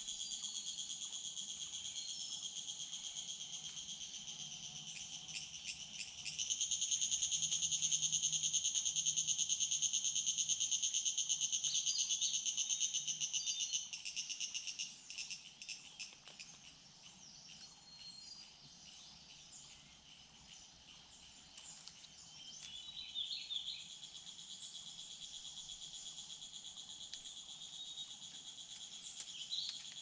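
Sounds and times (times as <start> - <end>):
insect pulsing trill: 0.0 - 18.2
faint insect background: 0.0 - 30.0.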